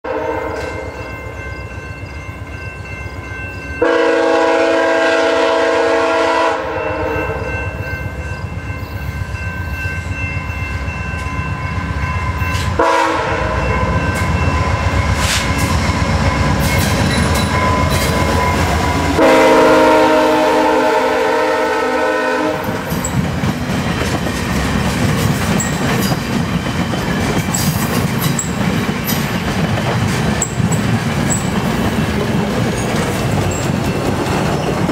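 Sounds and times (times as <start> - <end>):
locomotive horn blasts: 0.0 - 1.0, 3.8 - 7.6, 12.6 - 14.0, 18.9 - 23.0
rushing rail noise: 0.0 - 34.9
clattering train wheels: 8.0 - 19.5, 22.6 - 34.9.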